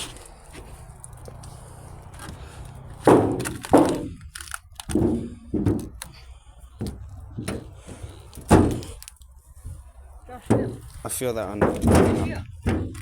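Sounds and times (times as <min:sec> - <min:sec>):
stomping on car metal body: 0:03.0 - 0:04.3, 0:04.9 - 0:06.2, 0:06.8 - 0:09.0, 0:10.4 - 0:13.0.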